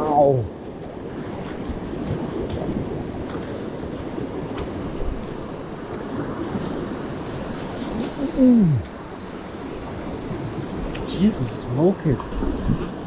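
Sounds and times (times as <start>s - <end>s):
surf: 0.0s - 13.0s
wind: 0.0s - 13.0s.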